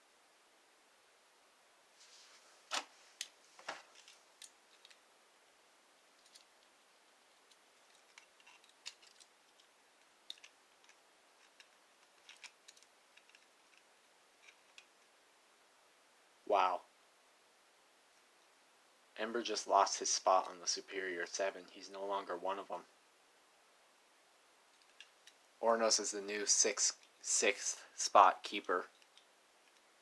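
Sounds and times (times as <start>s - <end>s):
plastic parts clicking: 6.2s - 6.7s, 7.3s - 14.9s.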